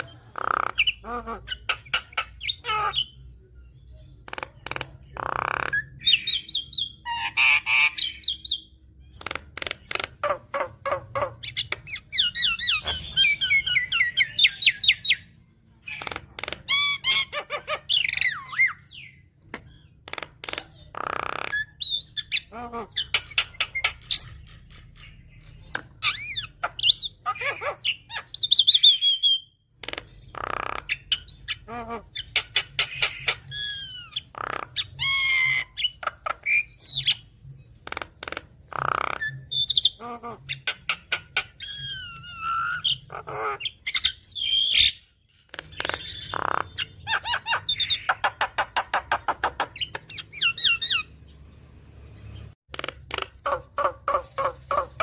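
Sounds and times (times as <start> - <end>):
bird singing whistles and chatter: 30.3 - 51.1.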